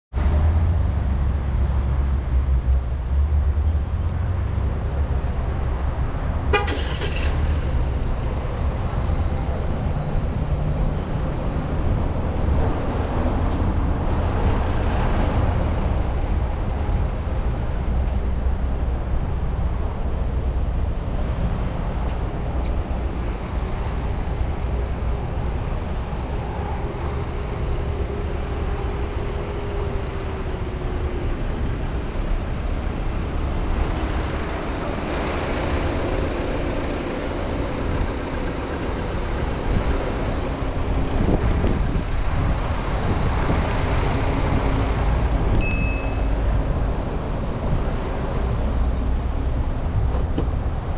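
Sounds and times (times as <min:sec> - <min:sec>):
vehicle rumble on road: 0:00.1 - 0:50.9
short horn toot: 0:06.5 - 0:07.2.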